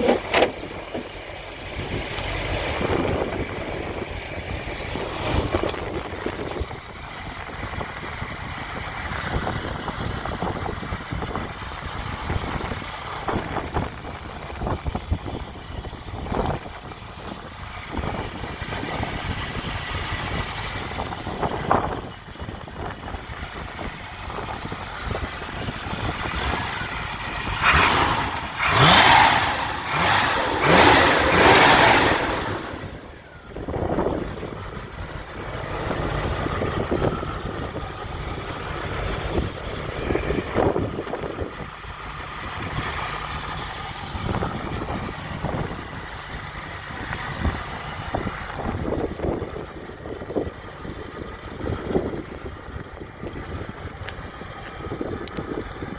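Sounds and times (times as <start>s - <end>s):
car engine revving: 0.0s - 6.5s, 26.0s - 41.4s.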